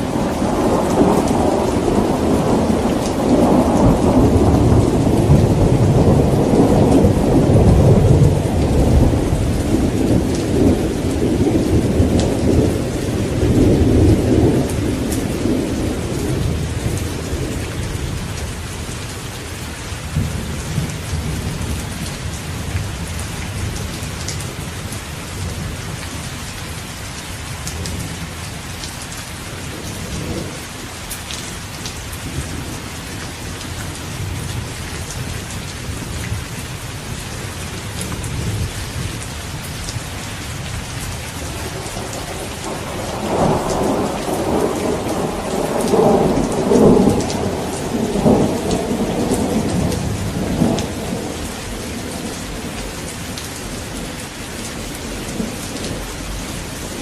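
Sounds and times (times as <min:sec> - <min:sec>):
thunder rumbling: 0:00.0 - 0:18.5, 0:33.5 - 0:57.0
steady rain falling: 0:00.0 - 0:57.0.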